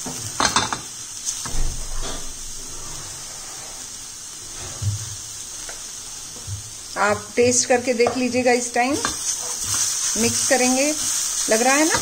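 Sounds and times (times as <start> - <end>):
vegetables sizzling in a pan: 0.0 - 12.0
spatula stirring: 7.0 - 12.0.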